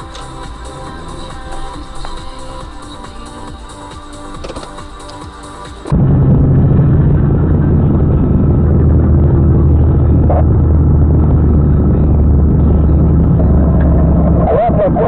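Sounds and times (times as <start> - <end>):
road noise: 0.0 - 15.0
vehicle engine drone: 0.0 - 15.0.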